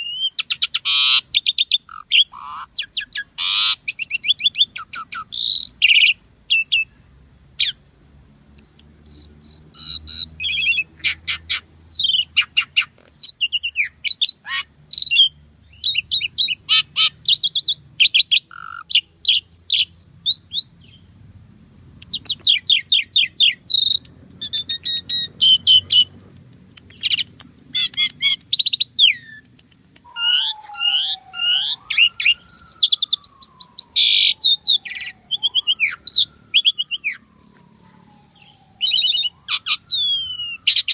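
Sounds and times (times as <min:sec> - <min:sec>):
starling singing: 0:00.0 - 0:07.0, 0:08.6 - 0:21.1, 0:22.0 - 0:40.9
gliding bird whistle: 0:22.1 - 0:26.1, 0:30.0 - 0:40.9.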